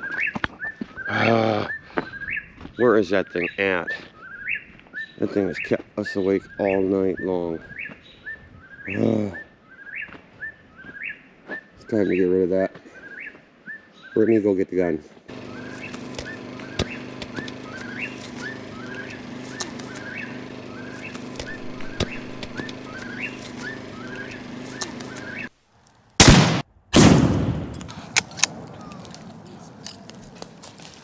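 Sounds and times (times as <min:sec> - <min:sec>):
gunshot: 0:26.2 - 0:28.6.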